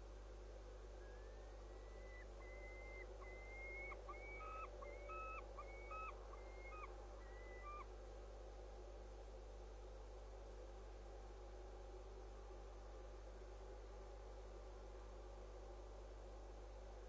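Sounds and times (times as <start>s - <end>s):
bird whistling: 1.2s - 7.8s.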